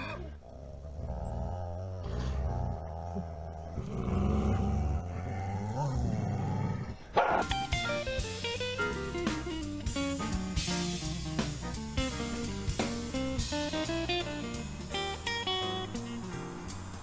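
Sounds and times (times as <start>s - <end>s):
cat growling and yowling: 0.0s - 7.4s
guitar and drums music: 7.2s - 17.0s.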